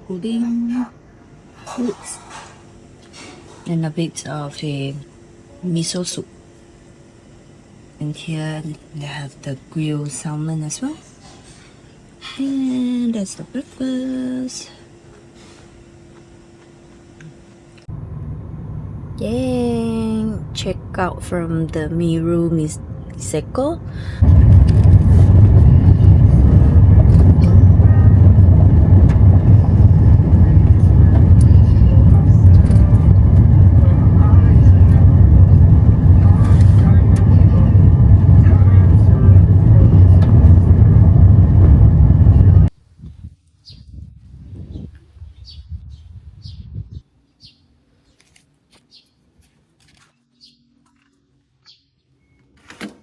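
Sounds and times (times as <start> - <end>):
car engine and road noise: 17.9 - 42.7
low rumble: 17.9 - 42.8
bird chirping: 47.3 - 48.2.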